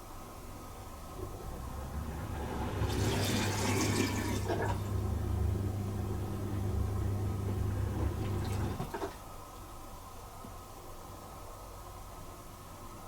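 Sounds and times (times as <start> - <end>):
dishwasher pump hum: 0.9 - 9.4
water swishing inside dishwasher: 1.4 - 9.3.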